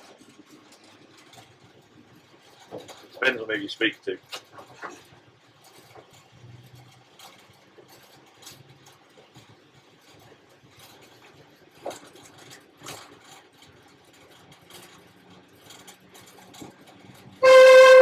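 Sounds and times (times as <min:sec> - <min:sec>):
locomotive engine low hum: 0:15.4 - 0:18.0.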